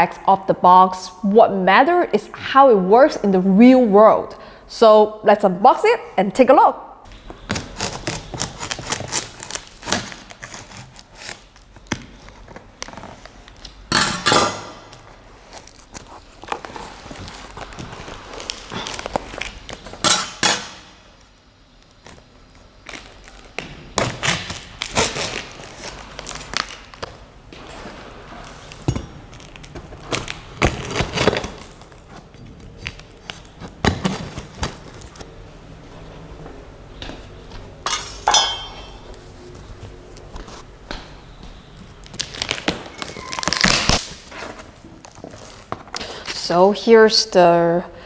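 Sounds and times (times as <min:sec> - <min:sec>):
packaging rustling: 0:07.2 - 0:13.8, 0:15.0 - 0:20.0, 0:21.8 - 0:35.3, 0:41.6 - 0:46.3.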